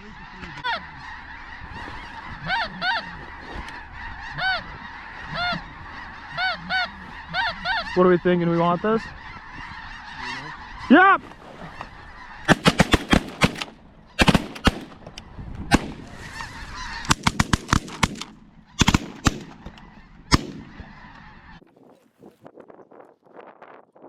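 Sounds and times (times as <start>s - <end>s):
flock of geese calling: 0.0s - 21.6s
shotguns firing: 12.5s - 15.0s, 15.7s - 16.2s, 17.1s - 19.6s, 20.3s - 20.8s.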